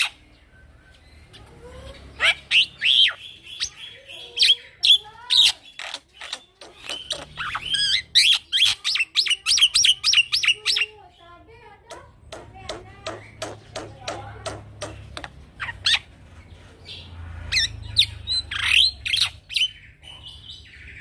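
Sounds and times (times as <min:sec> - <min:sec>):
myna singing whistles and chatter: 0:00.0 - 0:11.2.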